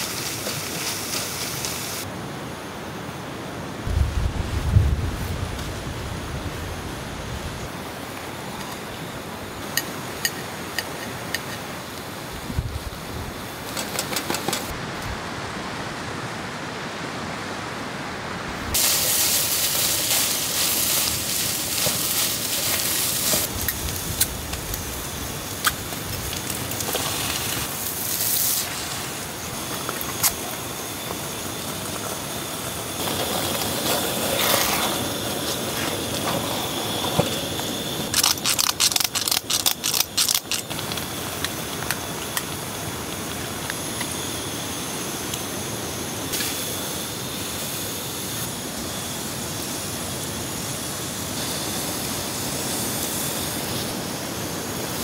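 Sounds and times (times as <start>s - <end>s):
background hiss: 0.0s - 55.0s
food sizzling in a frying pan: 18.7s - 35.2s.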